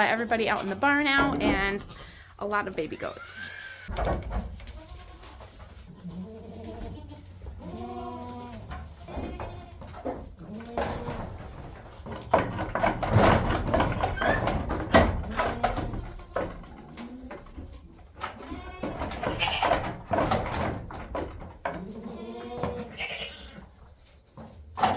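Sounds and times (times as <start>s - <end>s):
knocks and rustling: 0.0s - 2.9s, 3.9s - 22.9s, 23.7s - 24.9s
goats bleating: 3.0s - 3.9s, 4.7s - 11.3s, 18.3s - 19.8s, 21.8s - 23.6s.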